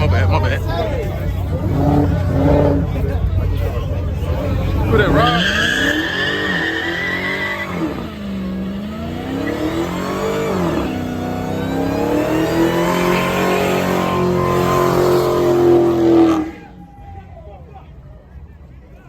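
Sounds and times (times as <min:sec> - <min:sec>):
car engine revving hard: 0:01.5 - 0:03.0, 0:04.7 - 0:16.6
tyres squealing: 0:05.0 - 0:11.4.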